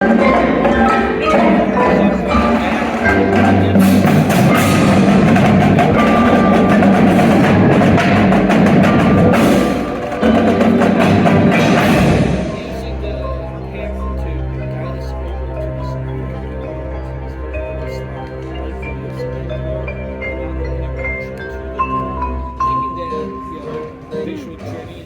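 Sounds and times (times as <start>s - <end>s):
sharp percussion strikes: 0.0s - 14.7s
wind instruments holding chords: 0.0s - 25.0s.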